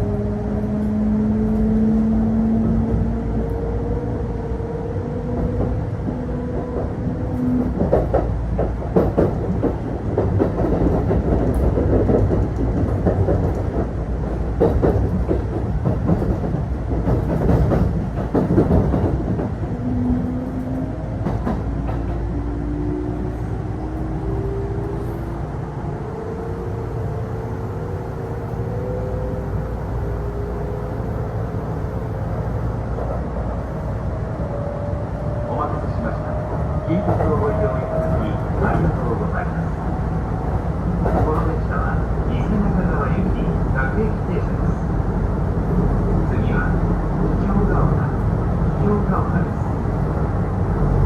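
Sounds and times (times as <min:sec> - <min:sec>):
train wheels clattering over rails: 0:05.3 - 0:19.7, 0:20.4 - 0:22.4, 0:40.9 - 0:41.8.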